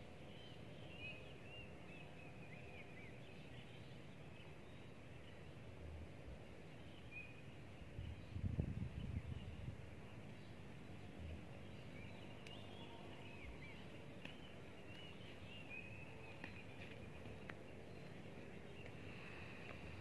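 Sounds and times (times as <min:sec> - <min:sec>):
outdoor hiss: 0:18.2 - 0:20.0.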